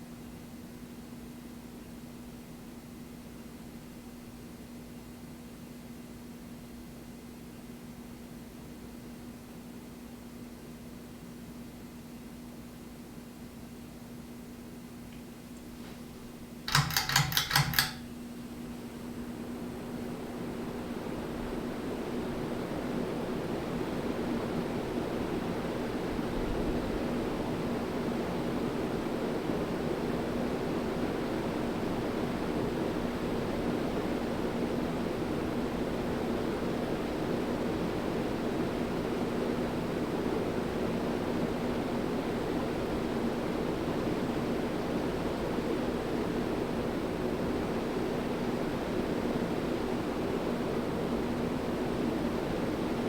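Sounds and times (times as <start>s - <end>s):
fan motor hum: 14.5s - 53.0s
ceiling fan air rush: 15.5s - 53.0s.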